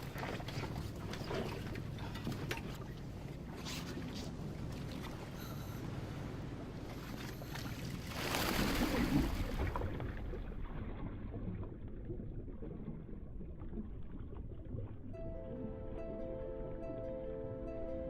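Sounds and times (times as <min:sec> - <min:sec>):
water lapping against boat: 0:00.0 - 0:15.2
wind: 0:00.0 - 0:18.0
diver splashing into water: 0:08.0 - 0:09.8.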